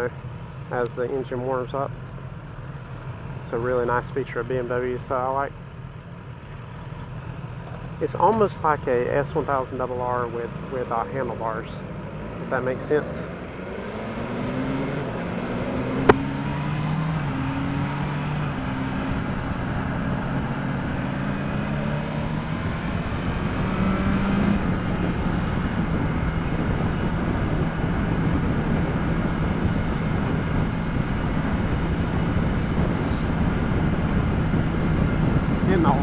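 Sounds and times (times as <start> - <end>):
motorcycle engine running: 5.5 - 36.0
wind noise on microphone: 13.6 - 36.0.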